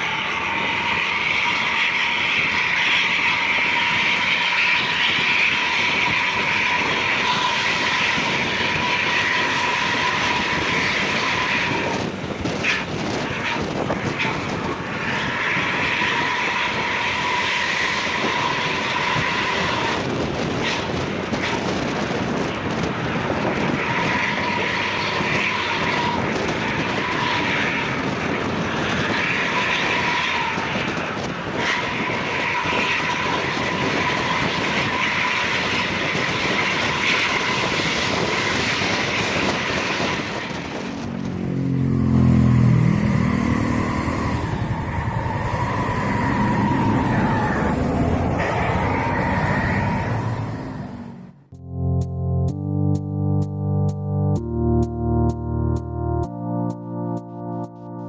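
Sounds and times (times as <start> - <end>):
diesel bus engine: 0.0 - 51.5
deep sliding pitch sound: 40.6 - 58.0
high exhaust whistle: 42.2 - 51.4.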